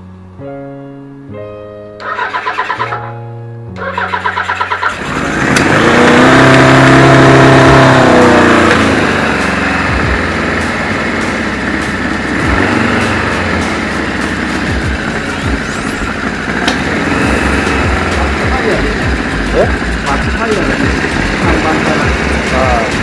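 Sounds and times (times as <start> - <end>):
motorcycle engine starting and revving: 2.0 - 3.2, 3.8 - 23.0.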